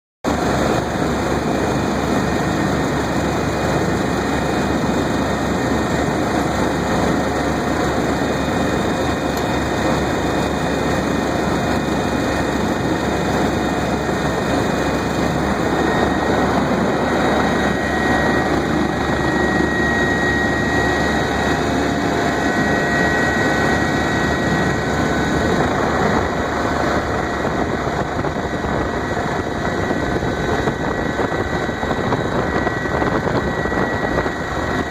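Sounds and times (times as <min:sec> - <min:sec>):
helicopter cabin noise: 0:00.3 - 0:34.9
high whine: 0:00.3 - 0:34.9.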